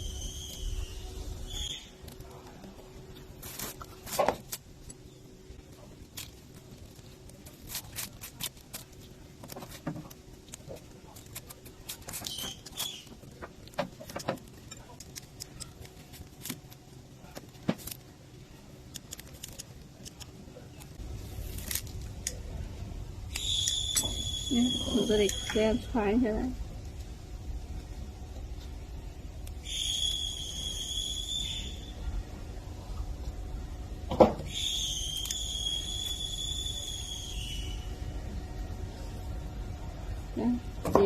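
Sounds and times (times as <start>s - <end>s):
faint steady hum: 0.0s - 41.0s
small parts and tools clicking: 5.8s - 18.1s, 18.8s - 21.0s
high chirps: 23.3s - 25.8s, 29.6s - 32.0s.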